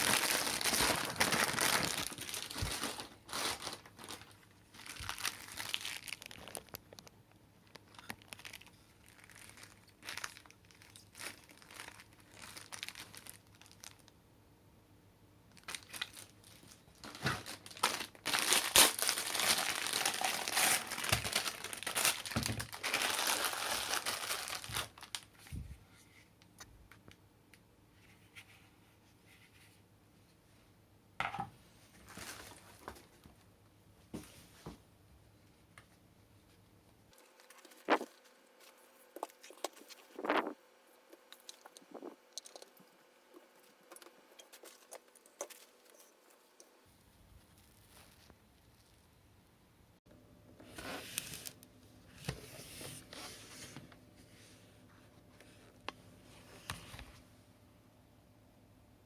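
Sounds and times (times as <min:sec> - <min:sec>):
packaging crinkling and tearing: 0:00.0 - 0:14.2, 0:15.5 - 0:25.4, 0:32.0 - 0:32.9, 0:37.2 - 0:46.7.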